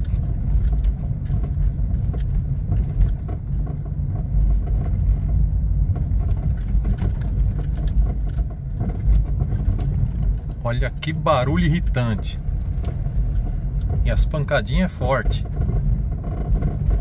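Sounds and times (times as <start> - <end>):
road rumble: 0.0 - 17.0
suspension knocking: 0.0 - 17.0.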